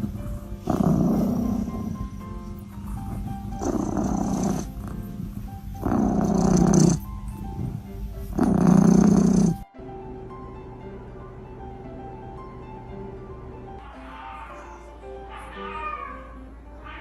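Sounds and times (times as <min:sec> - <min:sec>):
pet growling: 0:00.0 - 0:09.6
background music: 0:00.0 - 0:17.0.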